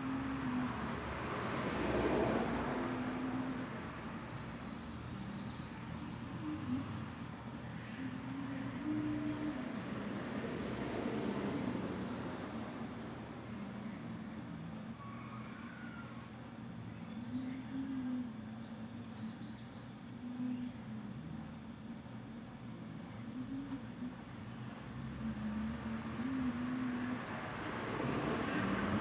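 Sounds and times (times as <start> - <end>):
insects trilling: 0.0 - 29.0
low wavering hum: 2.4 - 14.9.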